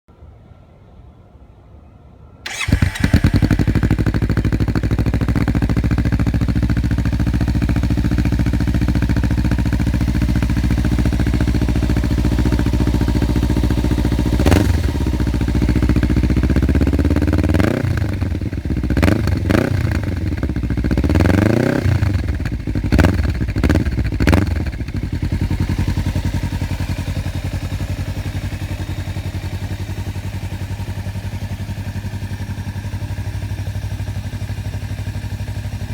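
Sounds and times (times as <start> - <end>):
quick throttle blips: 2.5 - 10.0
motorcycle engine idling: 2.5 - 35.9
motorcycle engine revving: 2.5 - 35.9.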